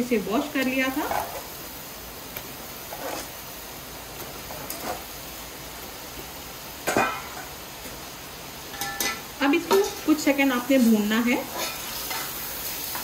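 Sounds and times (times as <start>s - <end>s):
chicken frying in oil: 0.0s - 13.0s.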